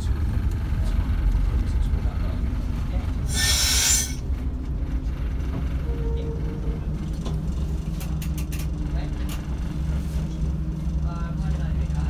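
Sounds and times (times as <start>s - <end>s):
railcar engine rumble: 0.0s - 12.0s
loud hiss: 3.3s - 4.2s.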